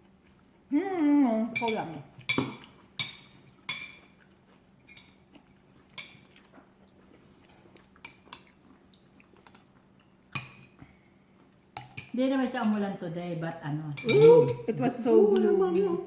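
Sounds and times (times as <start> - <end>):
cutlery clinking on plates: 1.6 - 4.1, 14.0 - 14.7.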